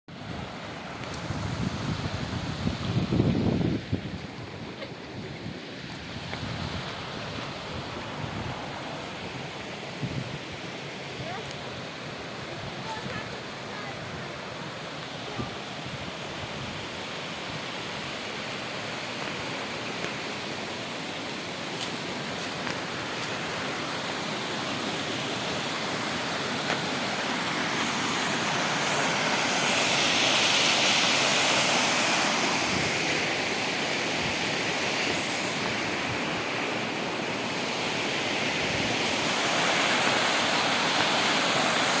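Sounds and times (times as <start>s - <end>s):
waterfall roaring: 10.7s - 42.0s.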